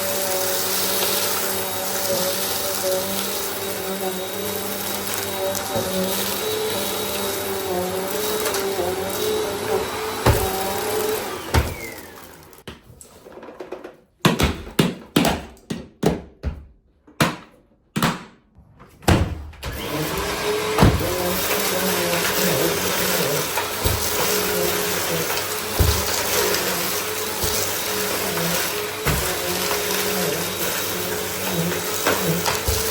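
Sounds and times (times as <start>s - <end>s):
vacuum cleaner motor: 0.0s - 12.7s, 19.6s - 32.9s.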